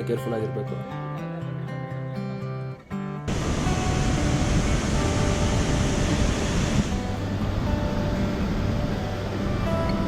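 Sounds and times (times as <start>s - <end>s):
background music with held notes: 0.0s - 10.0s
steady rushing noise: 3.3s - 9.6s.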